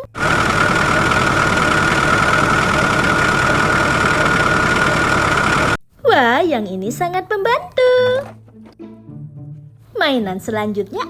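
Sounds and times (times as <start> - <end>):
machine running with high whine: 0.0 - 5.8.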